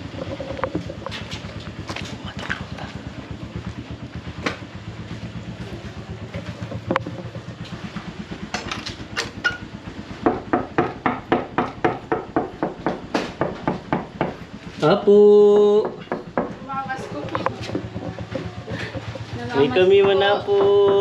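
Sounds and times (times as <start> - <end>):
small engine running: 0.0 - 21.0
loud regular knocks: 10.2 - 14.5, 15.6 - 18.5, 19.9 - 21.0.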